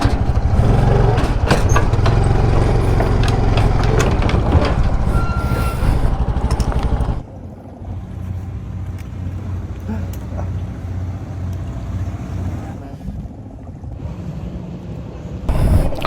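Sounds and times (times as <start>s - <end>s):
clicks and clanks: 0.0s - 7.3s
motorbike engine running: 0.0s - 7.3s.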